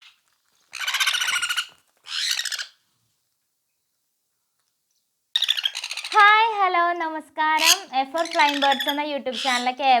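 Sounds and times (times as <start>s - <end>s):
parrot chicks raspy calls: 0.7s - 2.8s, 5.4s - 6.6s, 7.6s - 9.8s.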